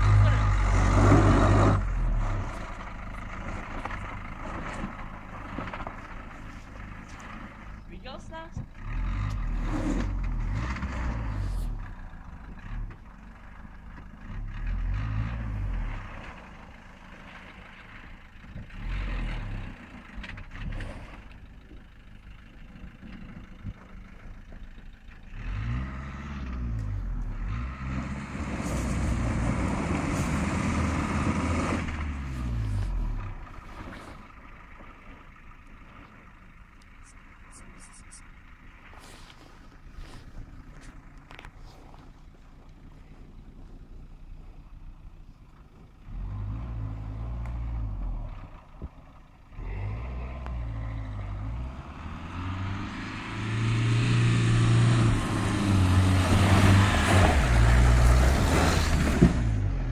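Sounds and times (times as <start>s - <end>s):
car engine revving under load: 0.0s - 7.9s, 8.6s - 16.8s, 25.3s - 35.2s, 45.7s - 59.9s.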